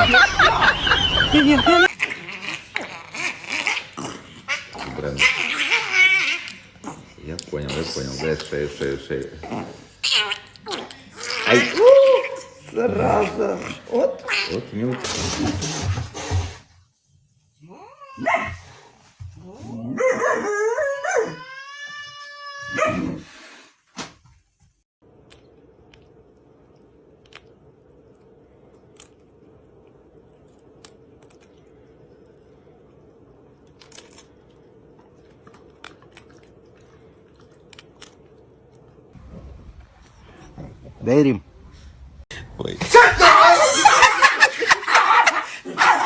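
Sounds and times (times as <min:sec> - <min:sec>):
dog barking and howling: 0:19.9 - 0:21.6, 0:22.7 - 0:23.2, 0:44.7 - 0:46.0.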